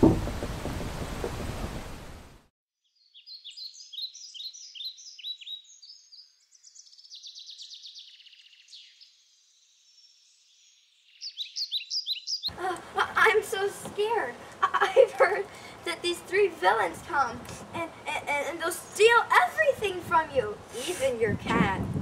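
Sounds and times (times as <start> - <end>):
songbirds chirping and trilling: 2.8 - 12.8.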